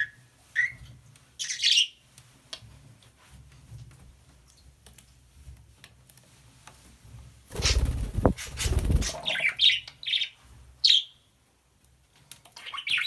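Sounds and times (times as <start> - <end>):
loud rustle: 7.5 - 9.4
budgerigar chirping and chattering: 7.6 - 9.8.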